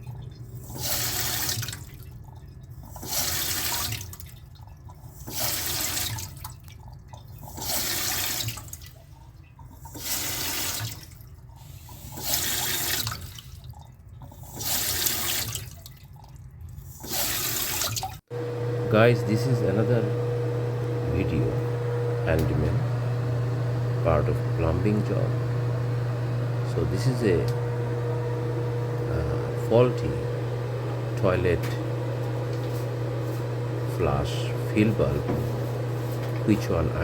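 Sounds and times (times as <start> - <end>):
water rushing through fill valve: 0.0 - 37.0
steady low hum: 18.3 - 37.0.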